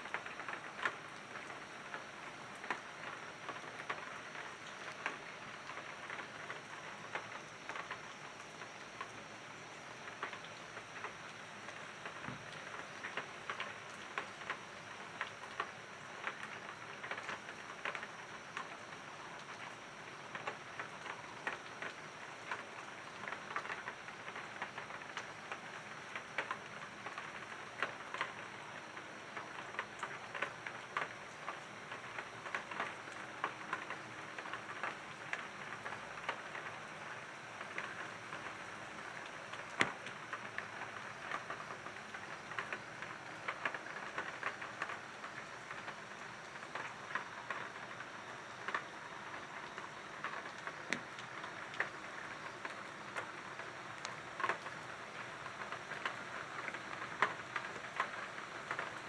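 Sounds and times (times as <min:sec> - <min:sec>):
raindrops ticking close by: 0:00.0 - 0:59.0
steady rain hiss: 0:00.0 - 0:59.0.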